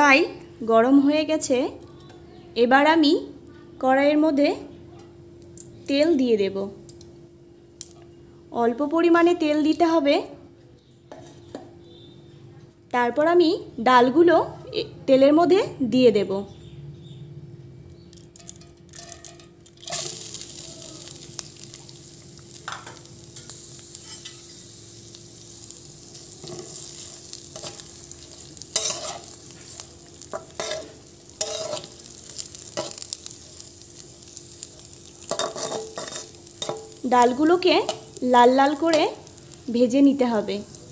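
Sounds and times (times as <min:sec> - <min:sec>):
lentils sizzling in oil: 0:07.8 - 0:08.0, 0:18.0 - 0:40.9
spatula scraping pan: 0:28.7 - 0:32.0, 0:35.3 - 0:37.0.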